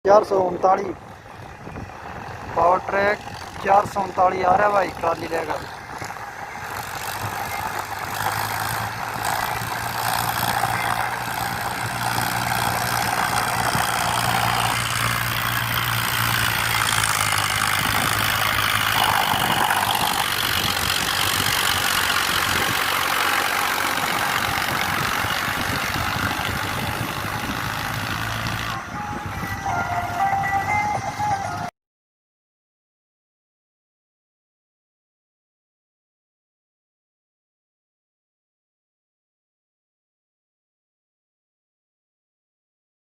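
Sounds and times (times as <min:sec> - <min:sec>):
tractor diesel engine running: 0:00.1 - 0:31.7.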